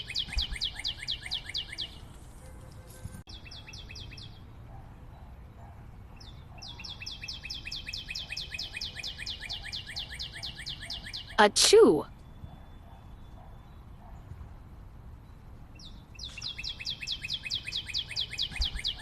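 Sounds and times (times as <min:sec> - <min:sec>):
fast trill of bird-like chirps: 0:15.8 - 0:19.0.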